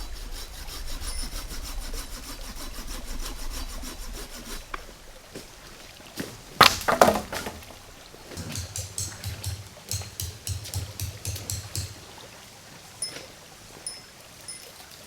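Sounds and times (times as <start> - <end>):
rhythmic scraping strokes: 0.0 - 5.1.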